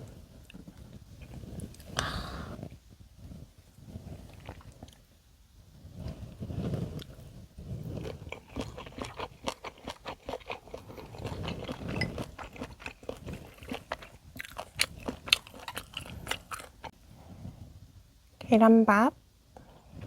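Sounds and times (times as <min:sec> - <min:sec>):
person chewing crunchy food: 0:04.2 - 0:05.0, 0:06.1 - 0:17.0.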